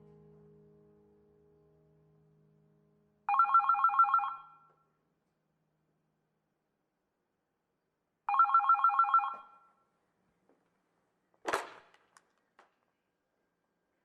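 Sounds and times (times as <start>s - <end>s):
telephone ringing: 3.3s - 4.7s, 8.3s - 9.7s.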